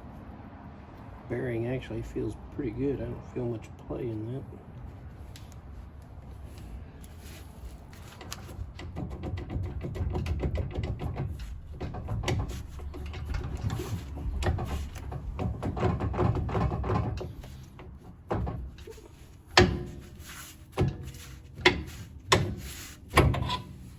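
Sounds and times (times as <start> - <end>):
metal clicks knocks and scraping: 6.5 - 23.9.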